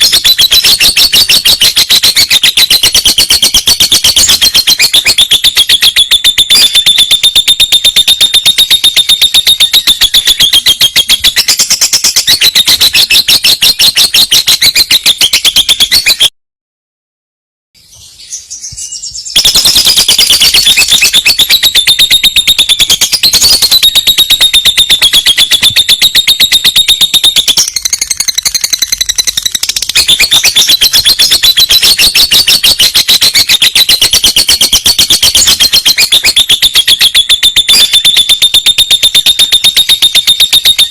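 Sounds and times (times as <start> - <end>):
lovebird trilling: 18.9 - 37.0.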